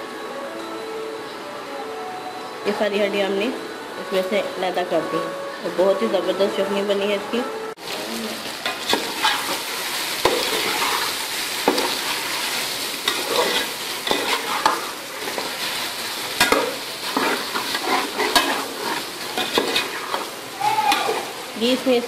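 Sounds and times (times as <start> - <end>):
meat and vegetables sizzling: 7.8 - 22.0
spoon scraping a pot: 13.0 - 15.5, 16.4 - 20.3.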